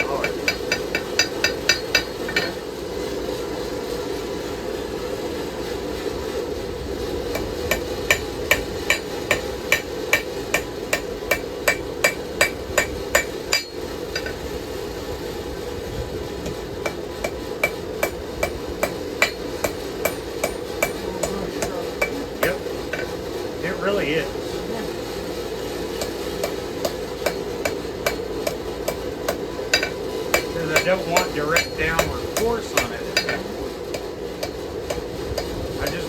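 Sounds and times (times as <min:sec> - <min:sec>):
hammer ringing on anvil: 0:00.0 - 0:02.6, 0:07.3 - 0:14.4, 0:16.4 - 0:23.2, 0:26.0 - 0:36.0.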